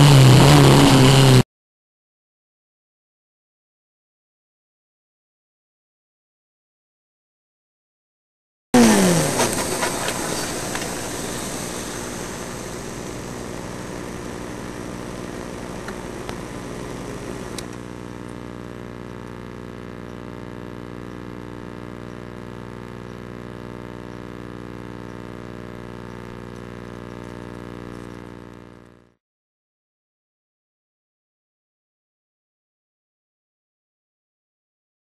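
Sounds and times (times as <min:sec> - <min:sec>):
noisy rush: 0:08.8 - 0:18.8.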